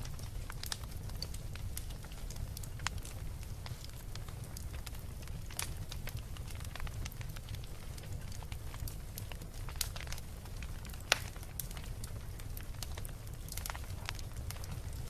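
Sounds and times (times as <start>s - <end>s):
bonfire crackling: 0.0s - 15.0s
burning wood popping: 0.0s - 15.0s.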